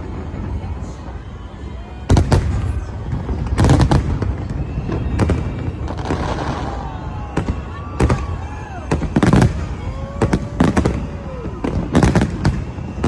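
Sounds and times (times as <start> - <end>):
fireworks bangs and booms: 0.0 - 13.0
fireworks crackling: 0.0 - 13.0.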